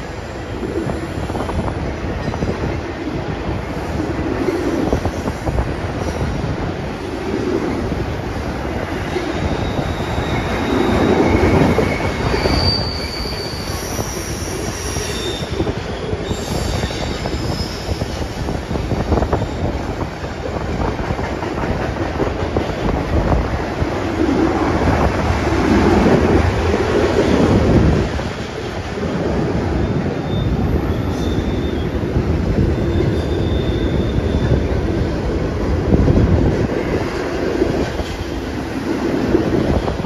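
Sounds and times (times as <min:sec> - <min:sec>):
freight train rumbling past: 0:00.0 - 0:40.0
steel wheels squealing: 0:08.9 - 0:19.8, 0:29.6 - 0:34.9.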